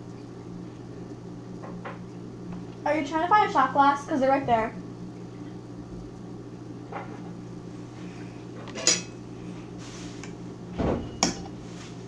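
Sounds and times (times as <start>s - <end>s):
steady low hum: 0.0s - 12.0s
dishes and glassware clinking: 8.7s - 9.2s.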